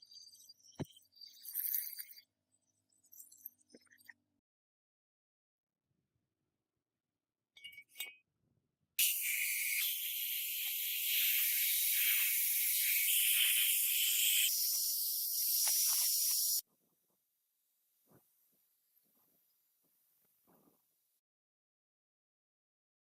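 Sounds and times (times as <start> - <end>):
pressurised jet hissing: 9.0 - 16.6.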